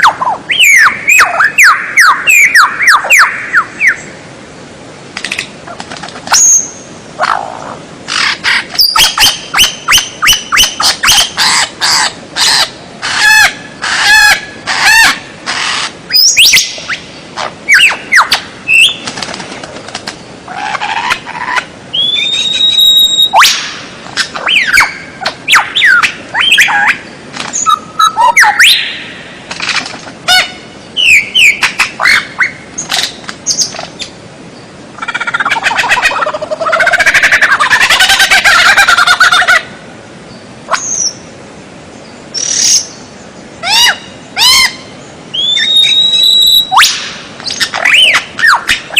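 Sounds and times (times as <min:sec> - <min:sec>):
songbird singing whistles: 0:00.5 - 0:04.1, 0:08.8 - 0:11.2, 0:16.1 - 0:17.0, 0:17.7 - 0:19.1, 0:21.9 - 0:23.7, 0:24.4 - 0:27.0, 0:31.0 - 0:32.6, 0:43.7 - 0:48.8.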